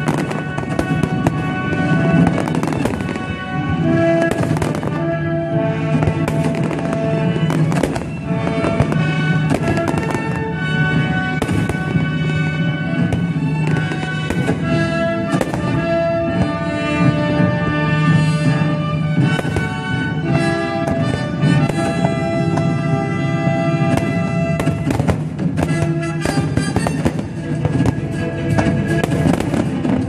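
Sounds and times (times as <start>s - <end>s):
fireworks bangs and crackles: 0.0s - 30.0s
loud music with held notes: 0.0s - 30.0s.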